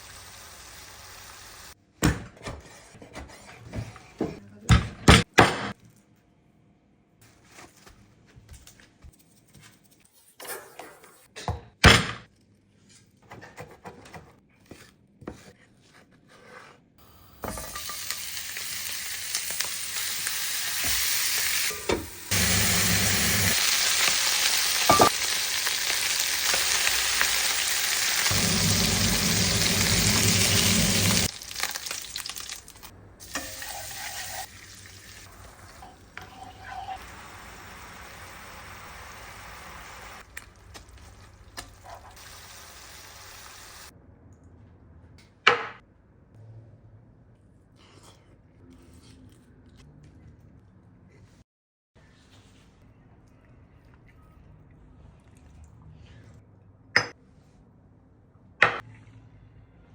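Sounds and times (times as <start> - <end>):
chicken sizzling in a pan: 0.0 - 1.8, 17.5 - 40.2, 41.1 - 43.9
kitchen knocks and clatters: 2.0 - 5.8, 10.4 - 12.3, 13.2 - 15.6, 45.3 - 45.8.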